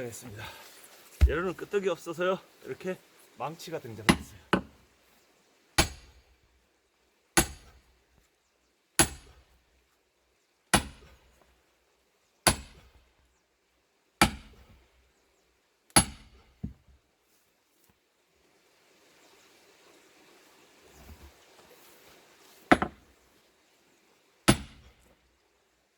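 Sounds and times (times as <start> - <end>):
light knock: 1.2 - 1.4.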